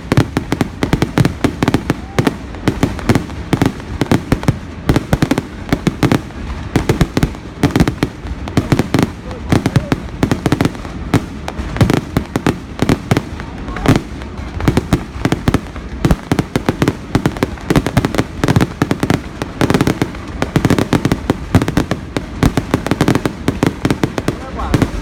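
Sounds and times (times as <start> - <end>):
fireworks bursting and crackling: 0.0 - 25.0.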